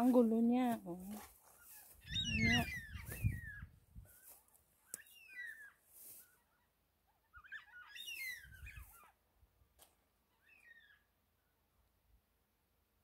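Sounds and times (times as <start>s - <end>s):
warbling bird calls: 1.6s - 9.2s, 10.3s - 11.1s.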